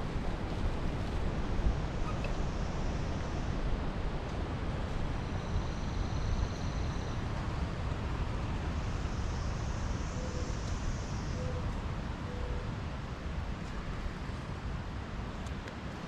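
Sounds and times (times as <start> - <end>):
wind buffeting microphone: 0.0 - 5.7.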